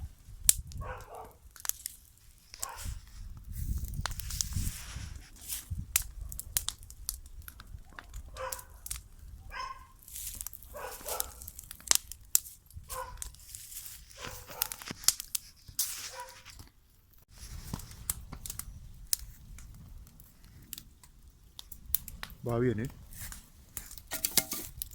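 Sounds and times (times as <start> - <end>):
bonfire crackling: 0.0 - 24.9
dog barking: 0.8 - 1.4, 2.6 - 3.0, 8.3 - 8.8, 9.4 - 10.0, 10.7 - 11.4, 12.9 - 13.3, 14.2 - 14.8, 16.1 - 16.4.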